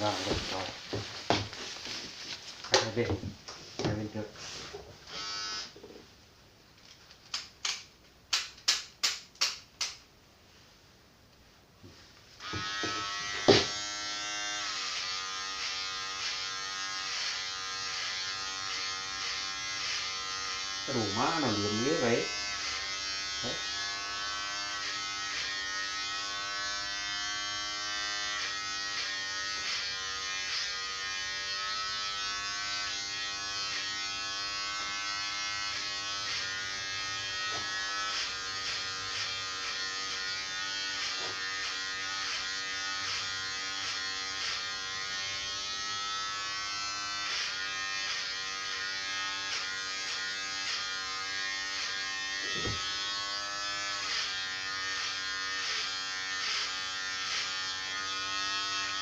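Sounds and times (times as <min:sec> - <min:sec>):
electric hair clippers buzzing: 0:05.1 - 0:05.8, 0:12.4 - 0:59.0.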